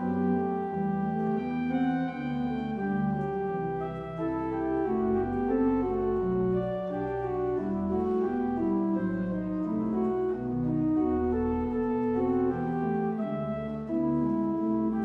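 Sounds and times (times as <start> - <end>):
organ music: 0.0 - 15.0.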